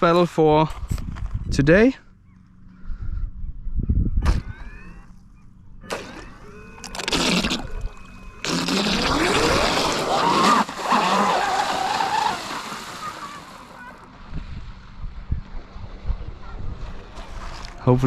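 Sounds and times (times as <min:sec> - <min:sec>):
electric motor whining: 0:04.3 - 0:13.8.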